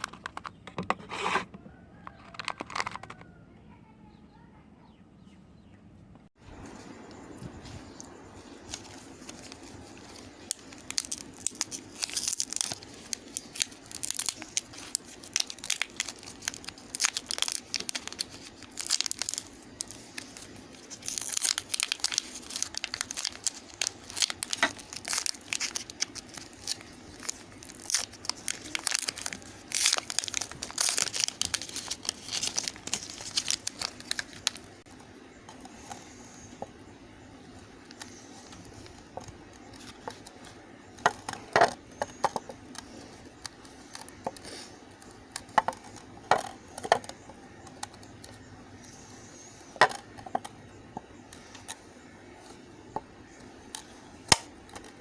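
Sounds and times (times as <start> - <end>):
soap crackling in hands: 8.0 - 35.0.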